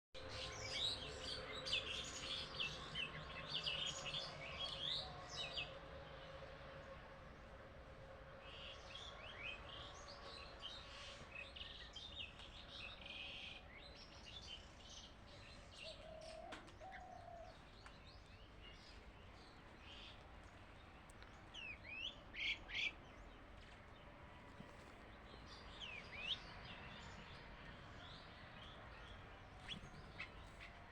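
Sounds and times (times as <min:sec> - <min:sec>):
birds chirping: 0:08.4 - 0:30.9
sweeping bird calls: 0:21.5 - 0:23.4, 0:25.3 - 0:30.9.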